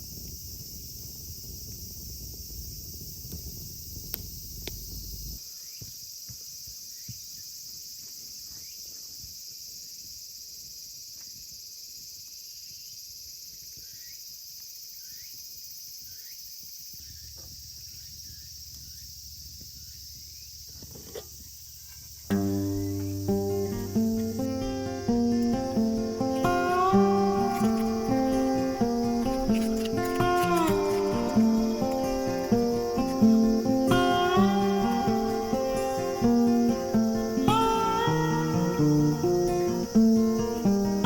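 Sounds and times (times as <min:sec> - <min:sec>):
insects chirping: 0:00.0 - 0:41.0
plucked guitar music: 0:22.3 - 0:41.0.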